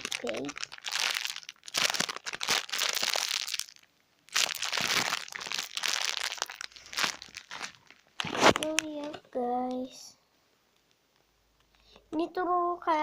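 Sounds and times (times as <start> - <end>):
squishy toy crinkling and rustling: 0.0 - 9.2.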